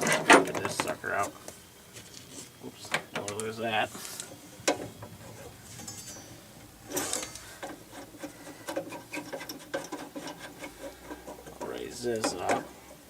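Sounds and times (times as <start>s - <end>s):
metal parts scraping clatter: 5.3s - 12.6s.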